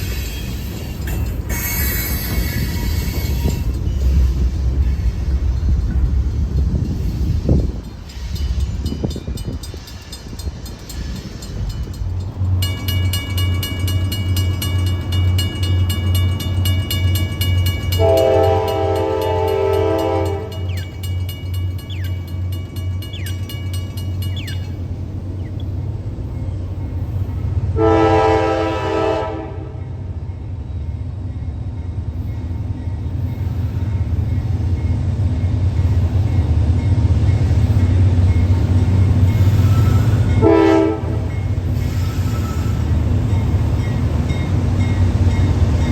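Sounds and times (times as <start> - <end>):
diesel locomotive engine throbbing: 0.0 - 45.9
multi-chime air horn: 18.0 - 20.7.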